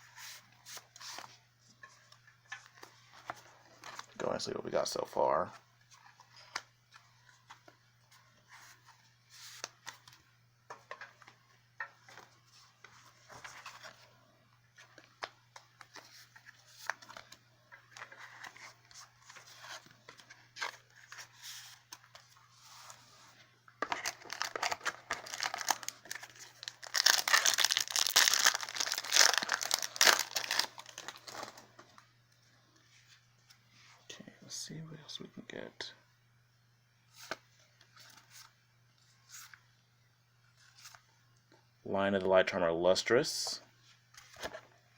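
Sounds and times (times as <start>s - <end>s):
cards shuffling: 23.8s - 31.6s
foil wrapper crinkling: 23.9s - 31.7s.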